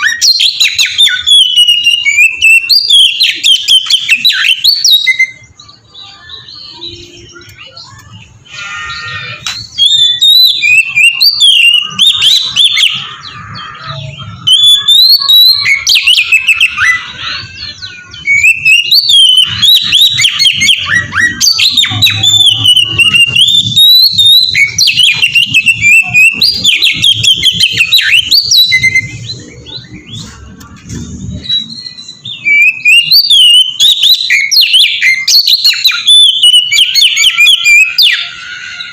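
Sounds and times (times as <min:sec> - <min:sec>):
bird singing varied song: 0:00.0 - 0:38.9.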